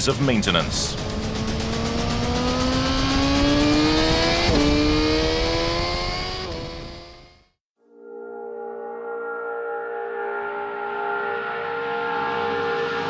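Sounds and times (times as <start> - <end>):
motorcycle engine accelerating: 0.0 - 7.6.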